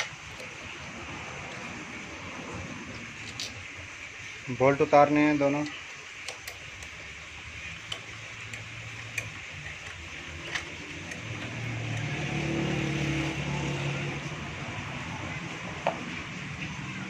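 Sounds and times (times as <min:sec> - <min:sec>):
vehicle engine running: 0:00.0 - 0:04.5, 0:06.6 - 0:17.0
spanner clicking on metal: 0:05.5 - 0:12.5.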